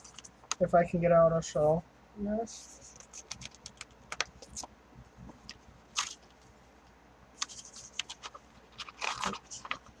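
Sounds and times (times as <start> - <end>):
paper rustling: 2.6 - 4.7, 5.3 - 6.5, 7.4 - 10.0.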